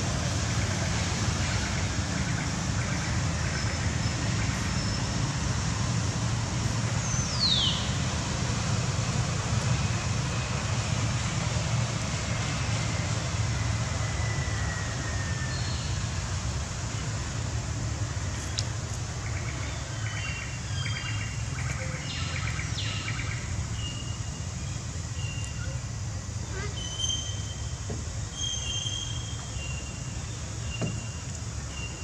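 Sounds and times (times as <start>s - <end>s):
low rumble and hiss: 0.0s - 32.0s.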